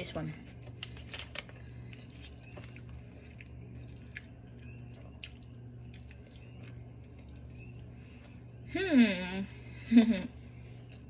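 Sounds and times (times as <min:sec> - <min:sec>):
steady low hum: 0:00.0 - 0:11.0
person chewing: 0:01.9 - 0:08.4.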